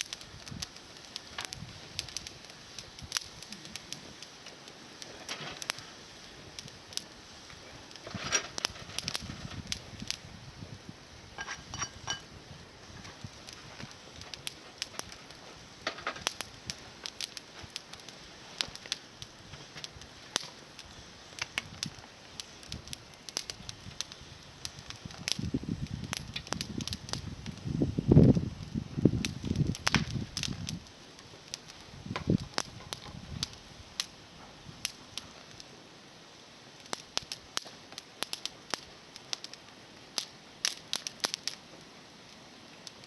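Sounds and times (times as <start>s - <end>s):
campfire crackling and popping: 0.0s - 43.0s.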